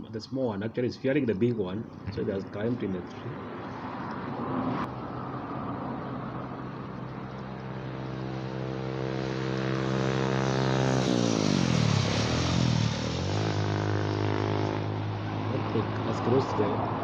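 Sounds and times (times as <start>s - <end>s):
engine passing by: 2.2s - 17.0s.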